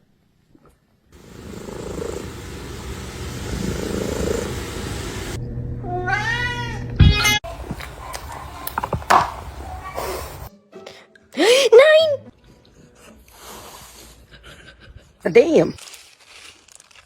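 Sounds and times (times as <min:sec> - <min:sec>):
cat meowing: 0:05.8 - 0:07.4.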